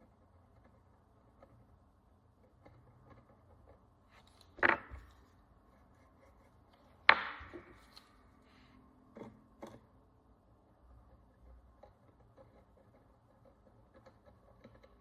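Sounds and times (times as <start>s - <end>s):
hard objects knocking on surface: 4.6s - 5.1s, 7.0s - 7.8s.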